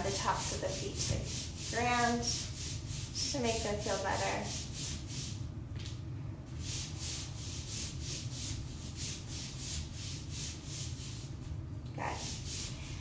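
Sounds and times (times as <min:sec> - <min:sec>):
bare feet rubbing on yoga mat: 0:00.0 - 0:05.4, 0:06.6 - 0:11.5.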